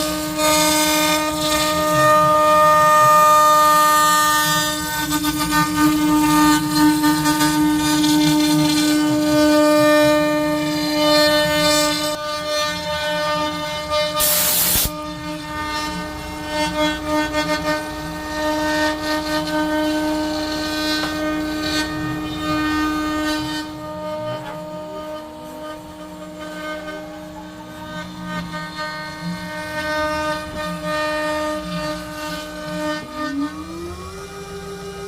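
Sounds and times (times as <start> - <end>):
router spindle whining carving wood: 0.0 - 35.0
burst of hiss: 14.2 - 14.9.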